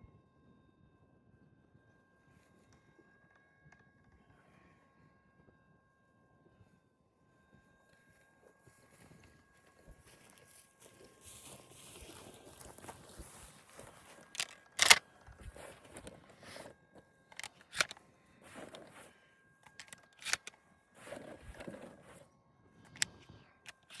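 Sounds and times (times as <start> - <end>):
shotgun metallic clicks: 14.2 - 15.0, 17.4 - 18.0, 19.7 - 20.6, 22.9 - 24.0.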